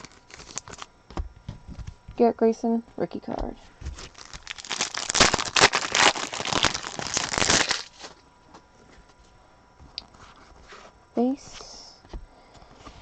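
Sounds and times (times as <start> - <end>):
plastic packaging crinkling: 0.0 - 0.9, 3.8 - 8.2.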